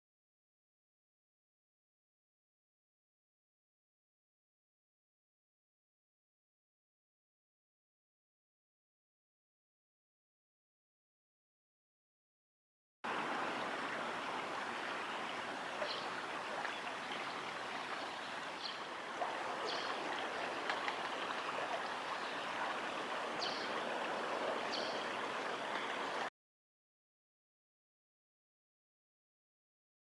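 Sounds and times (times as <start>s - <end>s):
river water flowing: 13.1s - 26.3s.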